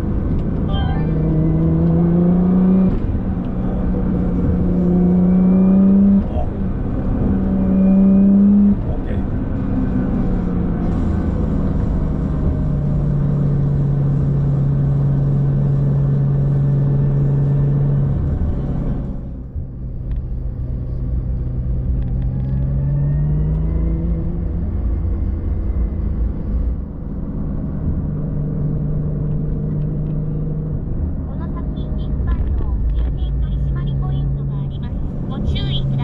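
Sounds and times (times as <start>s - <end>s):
vehicle engine running: 0.0s - 36.0s.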